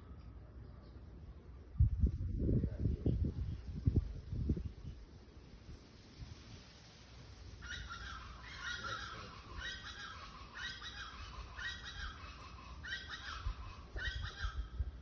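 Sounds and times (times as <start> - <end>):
low wind rumble: 0.0 - 15.0
bird calling: 7.6 - 15.0.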